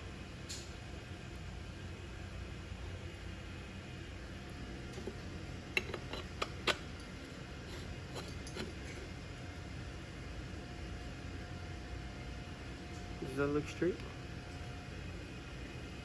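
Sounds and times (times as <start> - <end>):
low background hum: 0.0 - 16.0
metal parts clicking and tapping: 5.8 - 6.8.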